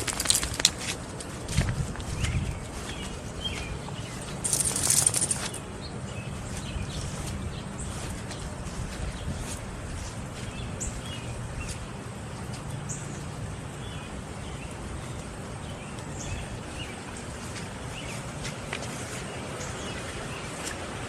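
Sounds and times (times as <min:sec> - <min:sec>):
small birds chirping: 0:01.9 - 0:20.8.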